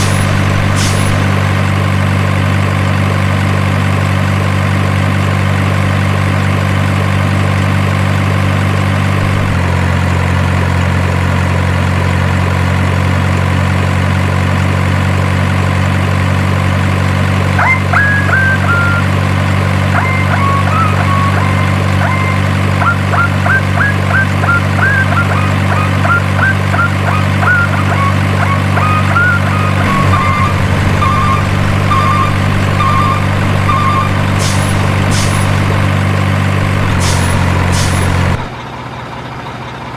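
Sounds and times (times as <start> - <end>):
diesel truck engine idling: 0.0 - 39.9
short high chirping notes: 20.0 - 35.9.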